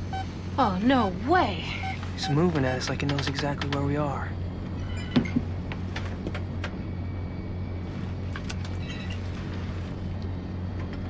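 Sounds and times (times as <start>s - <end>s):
low mechanical hum: 0.0s - 11.0s
faint electronic beeps: 1.6s - 3.0s, 4.7s - 5.4s, 6.7s - 9.4s
sharp clicks: 2.9s - 3.9s.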